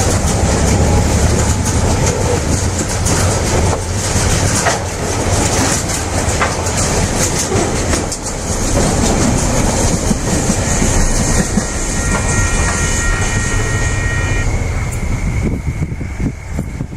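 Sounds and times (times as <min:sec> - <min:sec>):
wheels clicking over rail joints: 0:00.0 - 0:12.7
train rumble: 0:00.0 - 0:16.9
high wheel squeal: 0:06.7 - 0:16.9.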